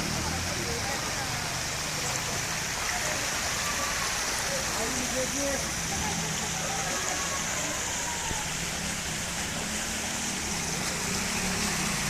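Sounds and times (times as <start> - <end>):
heavy rain: 0.0 - 12.0
runoff water flowing: 0.0 - 12.0.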